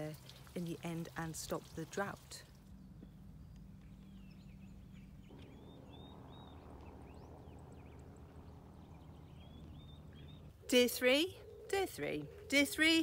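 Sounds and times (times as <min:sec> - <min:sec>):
small birds chirping: 0:00.0 - 0:13.0
low steady rumble: 0:02.4 - 0:11.2.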